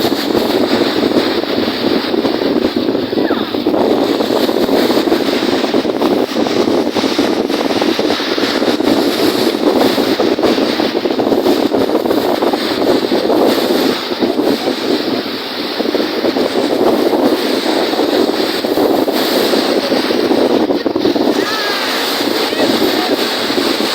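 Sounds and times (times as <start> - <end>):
waves on a lake: 0.0 - 23.9
wind rushing over microphone: 0.0 - 23.9.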